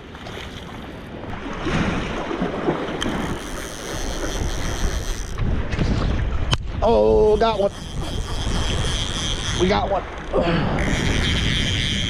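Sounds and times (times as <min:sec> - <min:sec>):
water sloshing: 0:00.0 - 0:06.5, 0:07.2 - 0:12.0
low splashes and knocks: 0:00.0 - 0:06.8
wind buffeting microphone: 0:00.0 - 0:12.0.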